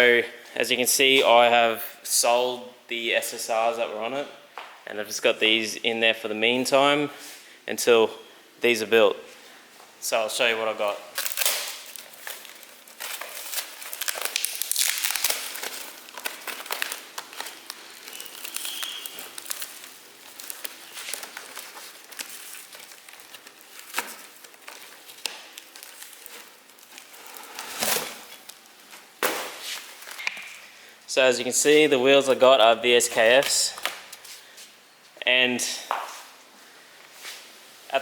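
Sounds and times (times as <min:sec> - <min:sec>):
packaging crinkling: 0:11.0 - 0:30.7.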